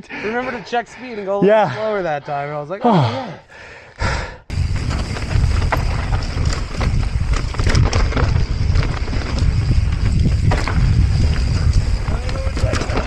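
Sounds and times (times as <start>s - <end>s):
bike rolling on dirt trail: 4.5s - 13.0s
bike tyres clicking and knocking: 4.5s - 13.0s
wind buffeting microphone: 4.5s - 13.0s.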